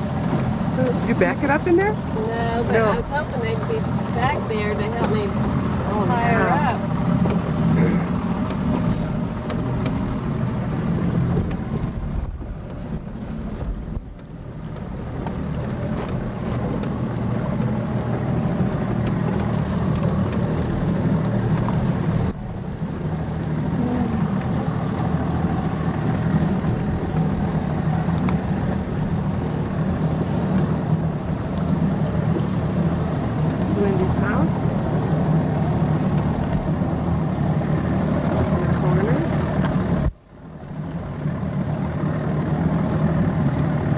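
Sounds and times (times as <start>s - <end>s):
wind on microphone: 0.0s - 41.2s
motorboat engine running: 0.0s - 43.9s.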